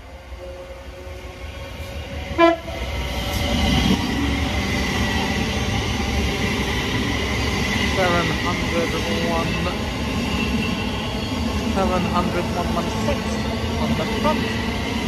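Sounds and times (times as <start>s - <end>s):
electric train running: 0.9s - 15.0s
train horn toot: 2.3s - 2.8s.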